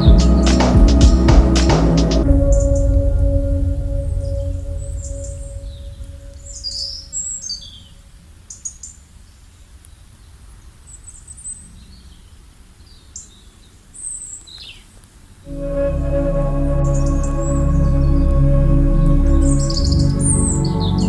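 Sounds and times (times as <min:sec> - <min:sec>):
birds chirping: 0:00.0 - 0:02.9
held musical tone: 0:00.0 - 0:07.2, 0:15.5 - 0:21.0
low background rumble: 0:00.0 - 0:08.3, 0:15.5 - 0:21.0.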